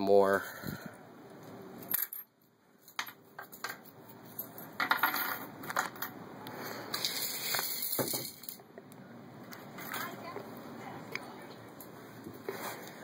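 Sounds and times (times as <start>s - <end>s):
coins clinking: 1.8s - 6.2s, 7.0s - 8.6s.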